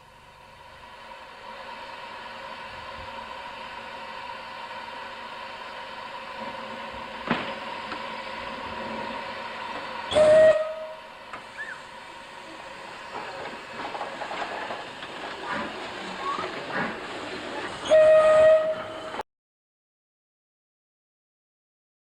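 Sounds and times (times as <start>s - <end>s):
train background noise: 0.0s - 19.2s
steam locomotive whistle: 10.0s - 11.9s, 17.8s - 19.2s.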